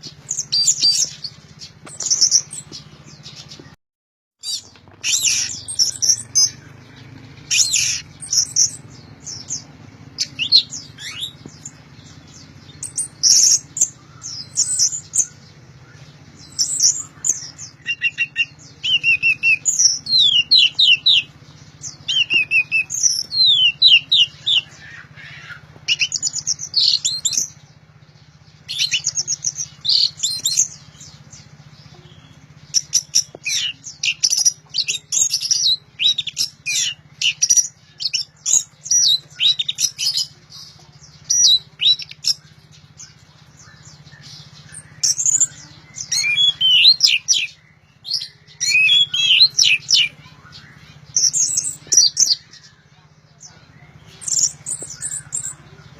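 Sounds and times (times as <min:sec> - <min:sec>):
thrush singing whistled phrases: 0:04.4 - 0:27.6, 0:41.2 - 0:52.7.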